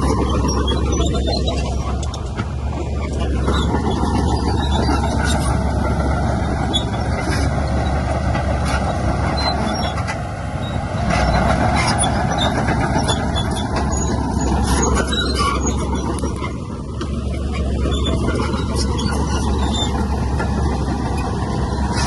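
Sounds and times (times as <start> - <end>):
diesel engine running: 0.0 - 22.0
metallic clanks and squeaks: 0.0 - 22.0.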